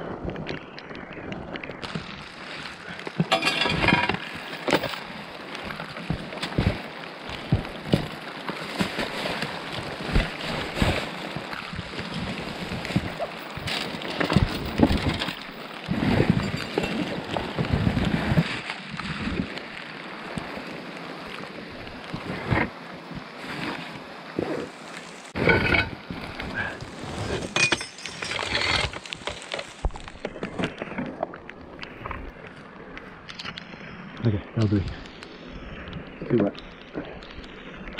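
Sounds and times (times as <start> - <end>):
rustling through junk: 3.2 - 11.6, 12.3 - 18.5, 25.4 - 31.1
steady wet hiss: 19.0 - 25.4.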